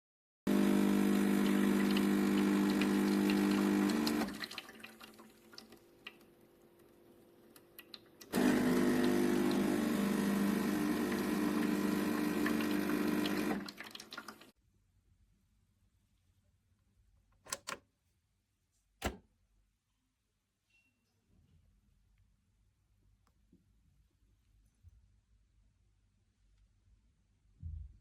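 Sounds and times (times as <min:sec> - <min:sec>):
espresso machine pump humming: 0:00.5 - 0:04.4, 0:08.3 - 0:13.8.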